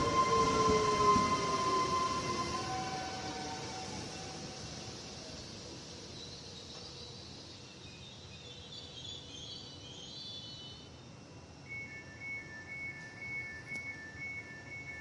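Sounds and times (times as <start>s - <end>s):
high brake squeal: 0.0s - 5.0s
train rolling to a stop: 0.0s - 15.0s.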